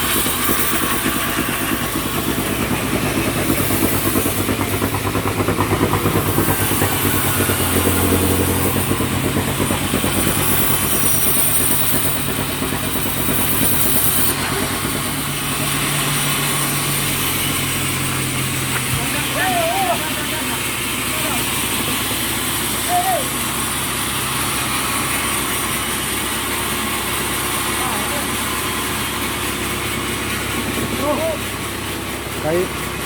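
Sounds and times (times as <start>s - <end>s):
sawmill engine running: 0.0s - 33.0s.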